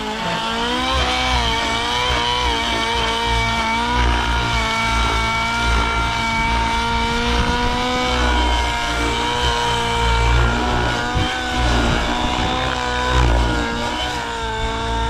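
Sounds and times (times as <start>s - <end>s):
model helicopter engine high revs: 0.0s - 15.0s.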